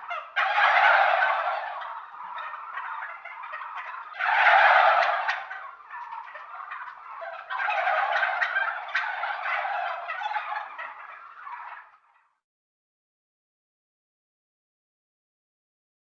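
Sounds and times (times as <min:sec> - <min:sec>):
turkeys gobbling: 0:00.0 - 0:12.4.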